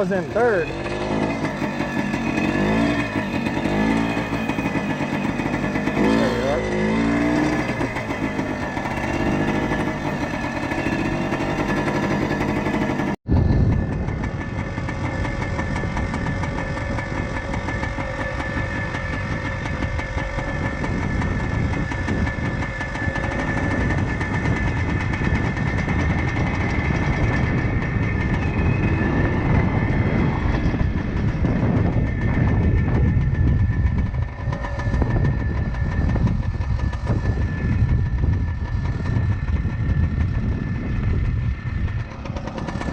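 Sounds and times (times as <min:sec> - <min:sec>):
two-stroke motorcycle engine: 0:00.0 - 0:42.9.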